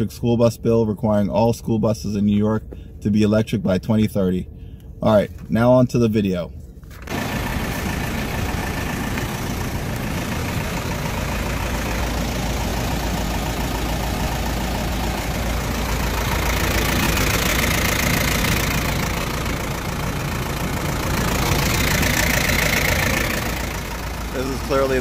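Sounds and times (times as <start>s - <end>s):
truck engine idling: 6.8s - 25.0s.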